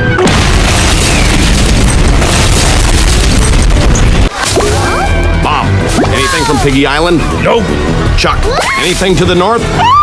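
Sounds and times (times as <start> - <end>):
explosion-like boom and rumble: 0.2 - 4.3.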